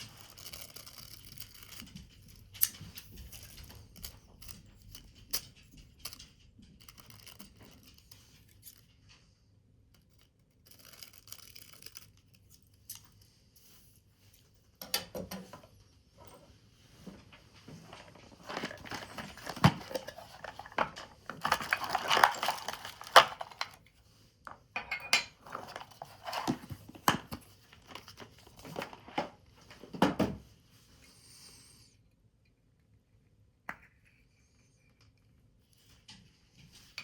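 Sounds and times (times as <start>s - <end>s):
paper crinkling: 17.5s - 23.9s, 25.4s - 29.4s.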